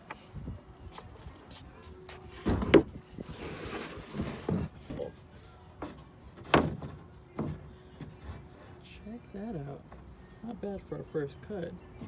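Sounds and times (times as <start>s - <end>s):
board scraping slide: 2.6s - 4.7s.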